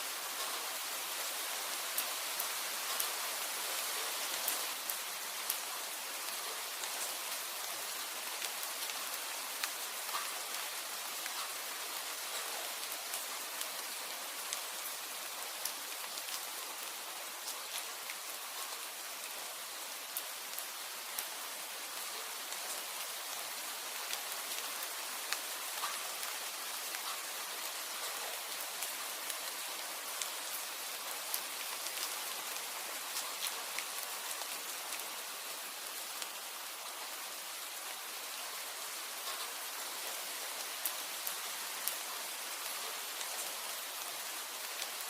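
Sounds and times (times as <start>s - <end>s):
steady rain hiss: 0.0s - 45.0s.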